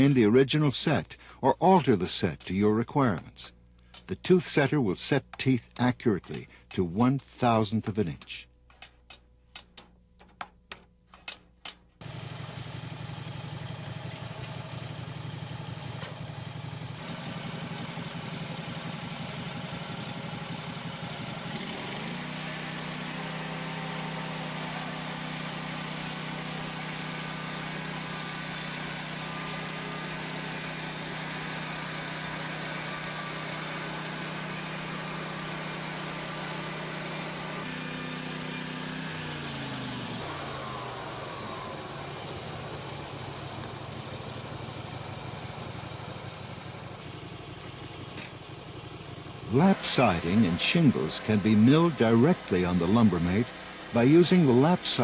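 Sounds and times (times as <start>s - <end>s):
small gasoline engine running: 12.0s - 55.0s.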